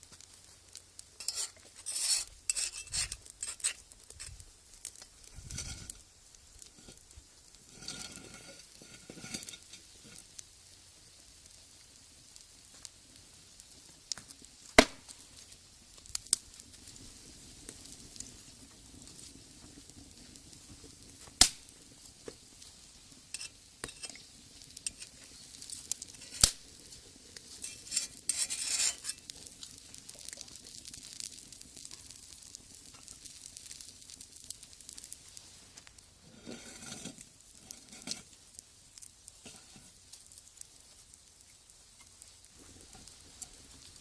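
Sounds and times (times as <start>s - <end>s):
batter sizzling in skillet: 0.0s - 44.0s
scraping: 1.2s - 4.4s, 27.6s - 29.2s.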